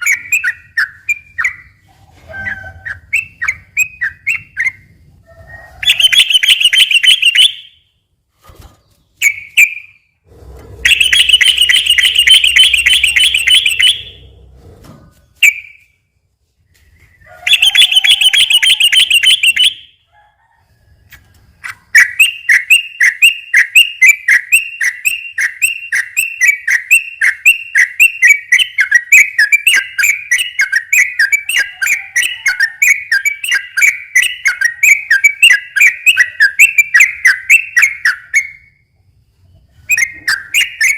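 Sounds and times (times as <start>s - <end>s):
bulbul singing rapid song: 5.8s - 7.8s, 10.9s - 14.2s, 17.5s - 20.0s.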